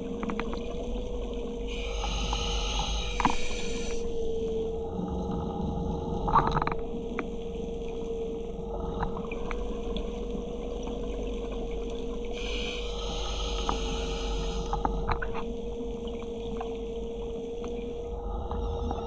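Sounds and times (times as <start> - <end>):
underwater hum and rumble: 0.0 - 19.0
hiss: 1.7 - 4.1, 12.4 - 14.9.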